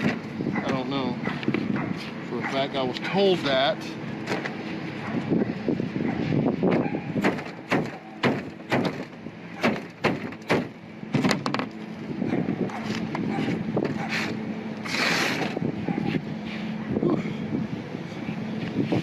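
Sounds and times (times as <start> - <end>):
knocks on sheet-metal roof: 6.7 - 11.6
hissing scrape: 14.0 - 16.8.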